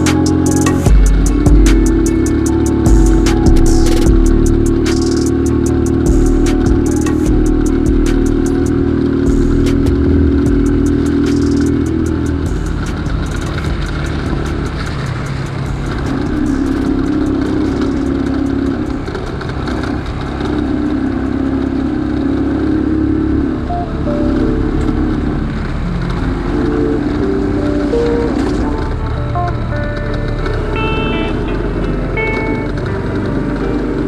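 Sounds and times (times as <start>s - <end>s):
motorcycle engine running: 0.0s - 23.4s.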